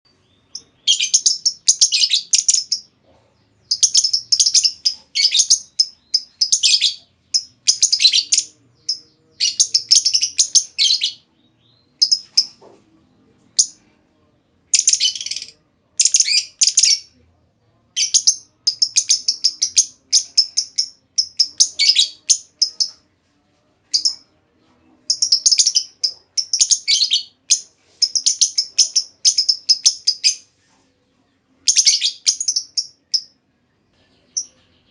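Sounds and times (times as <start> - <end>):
lovebird chattering chirps: 0.5 - 2.9, 3.6 - 11.2, 12.0 - 12.6, 14.7 - 17.1, 18.0 - 23.0, 25.1 - 30.4, 31.7 - 33.4.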